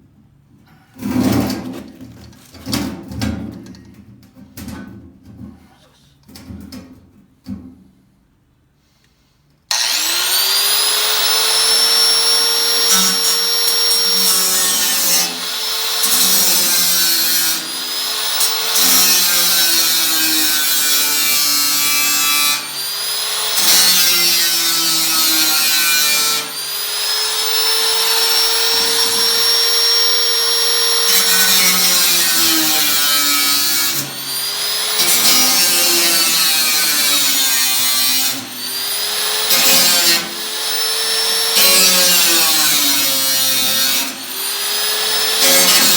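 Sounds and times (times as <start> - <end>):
power tool motor whining: 9.7 - 37.4, 38.0 - 45.9.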